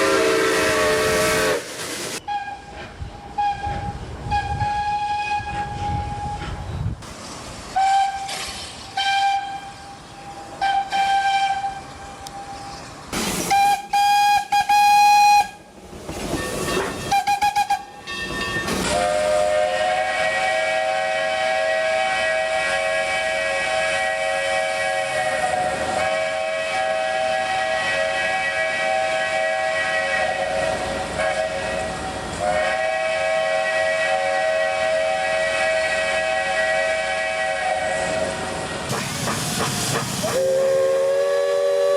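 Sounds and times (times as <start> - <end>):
steam hissing: 0.0 - 2.2, 12.3 - 15.4, 18.7 - 41.9
steam whistle blasts: 0.0 - 6.6, 7.8 - 12.6, 13.5 - 15.6, 17.0 - 18.0, 18.9 - 41.9.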